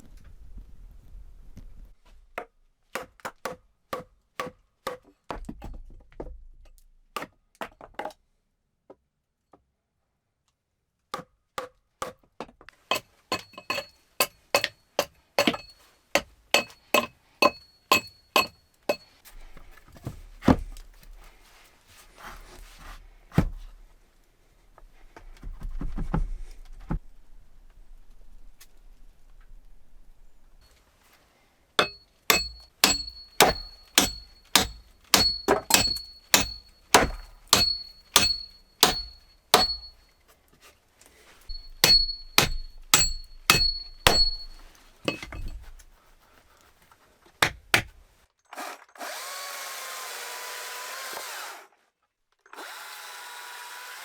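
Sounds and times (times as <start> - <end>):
hand tool striking wood: 2.4 - 5.8, 12.9 - 19.1, 31.8 - 40.0, 41.5 - 45.8, 47.4 - 48.0
short metallic ring: 12.9 - 14.7, 16.6 - 19.2, 31.8 - 40.0, 41.5 - 45.7.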